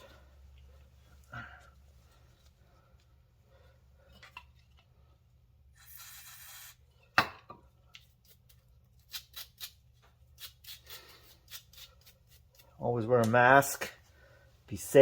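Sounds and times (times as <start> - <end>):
spray hiss: 5.8 - 6.8.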